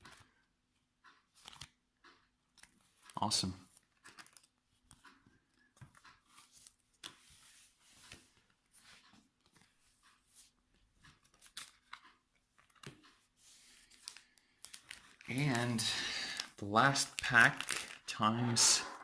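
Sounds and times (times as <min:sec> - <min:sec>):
cards and foil packs rustling: 0:03.8 - 0:04.6, 0:11.1 - 0:13.0, 0:13.6 - 0:19.0.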